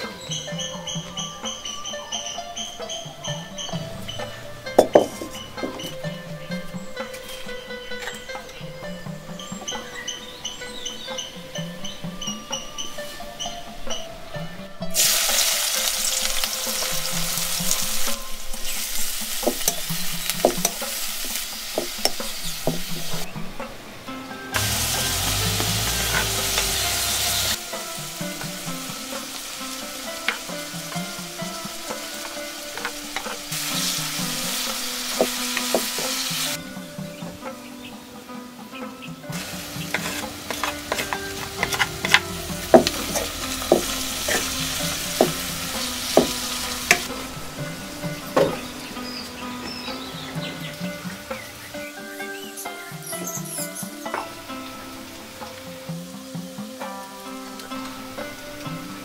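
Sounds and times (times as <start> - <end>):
onions sizzling in hot oil: 14.9 - 23.3, 24.6 - 37.5, 39.3 - 59.0
spoon stirring against pan: 39.4 - 47.2.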